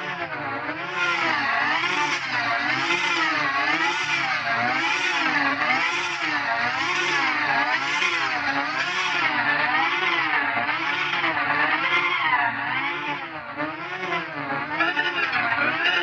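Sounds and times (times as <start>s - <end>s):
warbling buzzy electronic tone: 1.3s - 16.0s.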